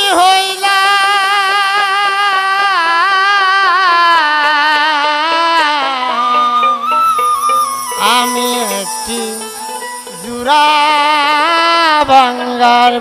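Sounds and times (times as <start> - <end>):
person singing long ornamented note: 7.8 - 13.0.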